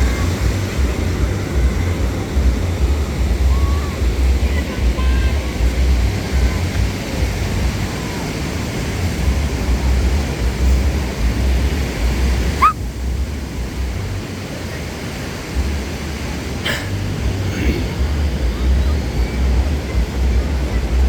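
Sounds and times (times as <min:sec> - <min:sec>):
ocean surf washing on beach: 0:00.0 - 0:21.0
wind rumbling on microphone: 0:00.0 - 0:21.0
short rising squeak: 0:12.6 - 0:12.8.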